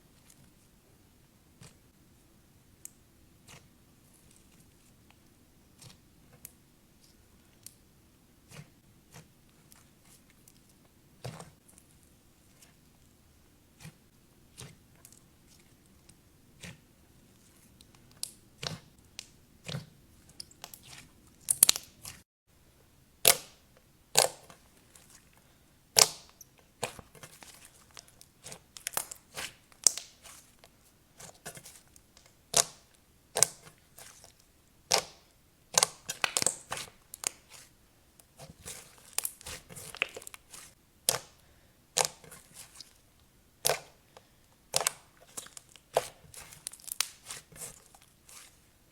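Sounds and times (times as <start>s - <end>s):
slime crackling pops: 34.9s - 37.4s.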